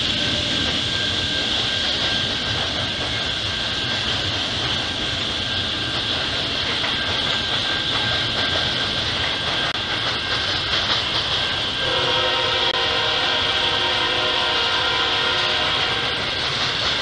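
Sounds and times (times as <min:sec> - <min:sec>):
train wheels rumbling on rail: 0:00.0 - 0:17.0
locomotive horn: 0:11.8 - 0:16.3.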